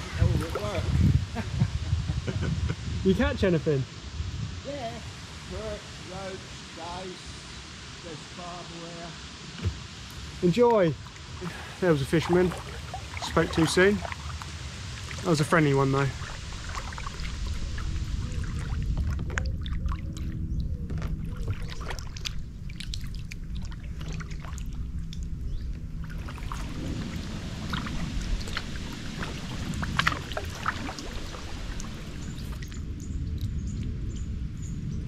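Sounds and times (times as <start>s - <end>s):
moving water rumble: 0.0s - 35.0s
paddle strokes splashing water: 11.0s - 25.3s, 26.0s - 32.8s.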